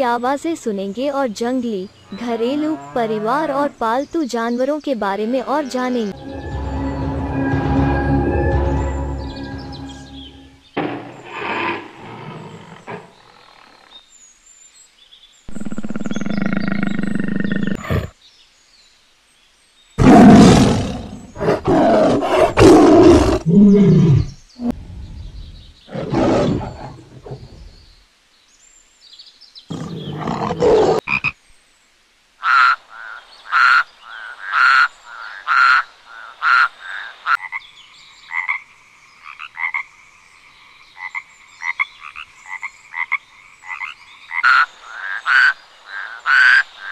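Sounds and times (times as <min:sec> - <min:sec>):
tiger growling and roaring: 0:11.1 - 0:13.9, 0:15.5 - 0:18.2, 0:20.0 - 0:27.8, 0:29.7 - 0:31.0
frog croaking: 0:15.5 - 0:18.1, 0:29.7 - 0:31.4, 0:32.4 - 0:46.9.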